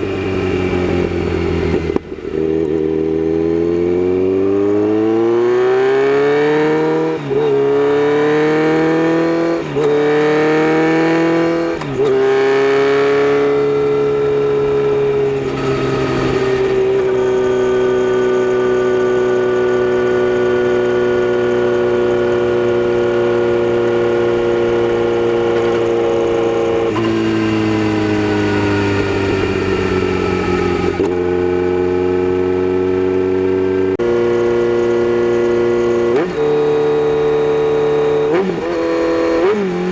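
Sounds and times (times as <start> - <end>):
loud motorcycle engine accelerating: 0.0 - 39.9.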